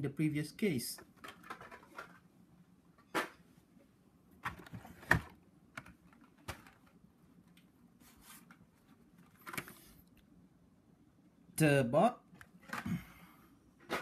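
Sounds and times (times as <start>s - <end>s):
soft packaging rustle: 8.0s - 10.2s.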